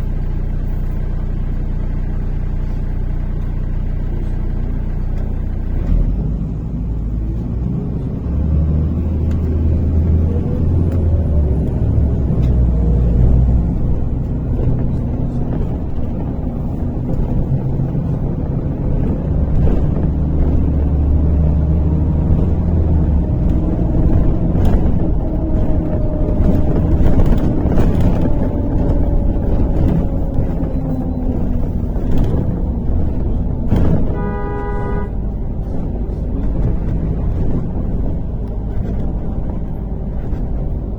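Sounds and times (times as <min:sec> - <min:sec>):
bus engine and road rumble: 0:00.0 - 0:40.9
rattles and knocks: 0:09.1 - 0:40.9.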